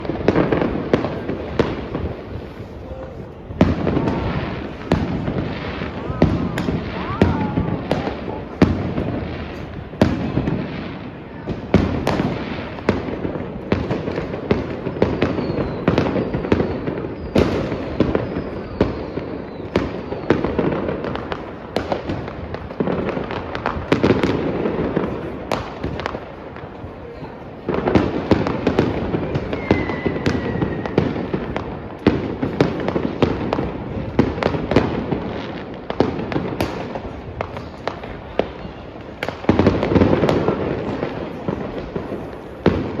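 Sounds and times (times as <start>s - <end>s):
fireworks rising whistles: 0.0s - 8.4s, 14.6s - 20.7s, 28.6s - 31.6s
distant explosions rumbling: 0.0s - 43.0s
fireworks bangs and crackles: 0.0s - 43.0s.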